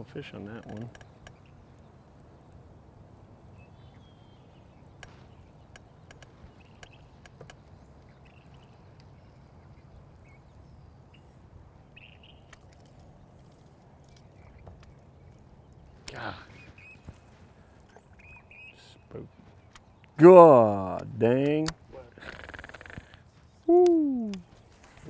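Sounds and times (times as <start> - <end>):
faint short bird calls: 22.1 - 24.5.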